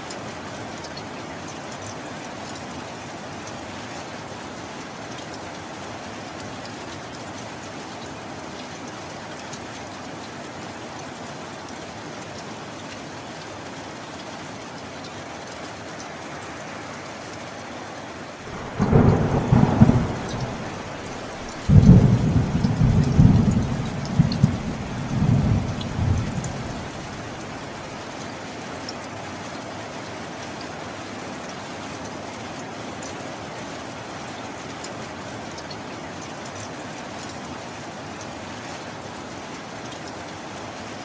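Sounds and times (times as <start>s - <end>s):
steady rain falling: 0.0s - 41.0s
thunder rumbling: 18.5s - 27.8s.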